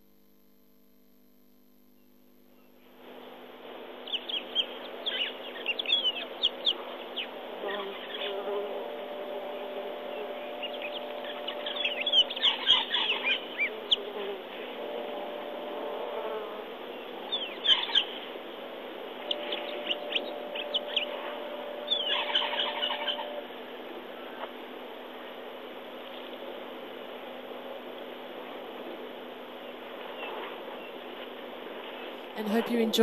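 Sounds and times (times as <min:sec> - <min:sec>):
background hiss: 0:00.0 - 0:33.0
birds chirping: 0:04.0 - 0:14.2, 0:16.8 - 0:18.4, 0:19.2 - 0:24.5.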